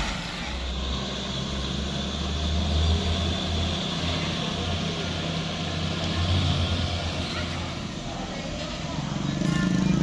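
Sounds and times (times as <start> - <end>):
diesel truck engine droning: 0.0 - 10.0.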